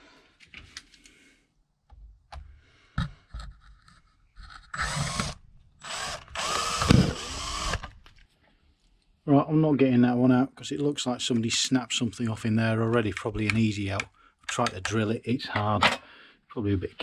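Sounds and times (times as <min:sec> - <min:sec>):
power drill running: 0:04.7 - 0:08.0.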